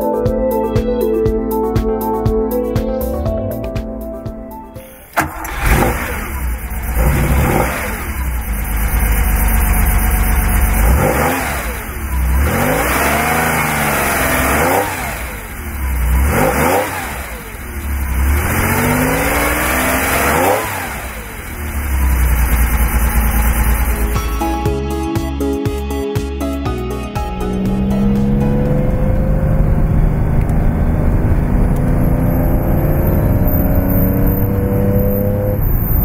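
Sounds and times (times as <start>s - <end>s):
car engine revving: 4.8s - 24.3s, 27.4s - 36.0s.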